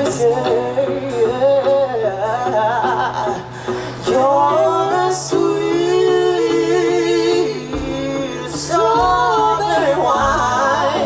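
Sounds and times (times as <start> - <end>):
bass: 0.0 - 11.0
male singer: 0.0 - 11.0
drum hits: 7.7 - 8.3, 8.9 - 11.0.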